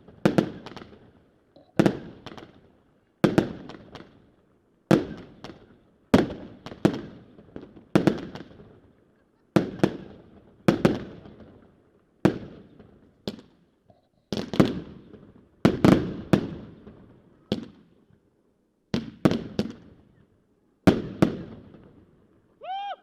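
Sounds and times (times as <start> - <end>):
fireworks banging: 1.7 - 2.6, 18.9 - 20.1.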